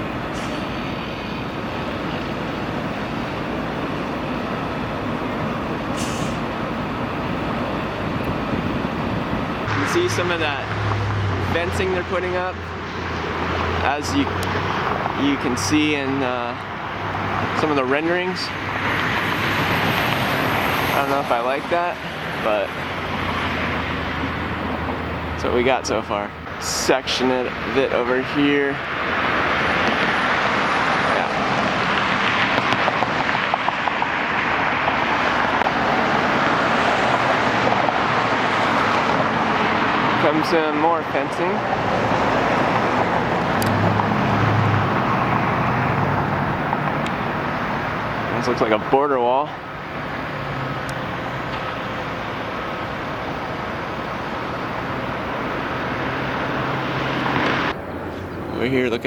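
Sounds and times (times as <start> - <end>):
rushing traffic noise: 0.0 - 59.0.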